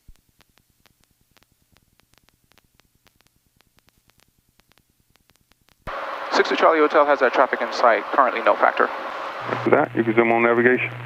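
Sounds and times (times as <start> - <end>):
faint irregular ticking: 0.0 - 6.0.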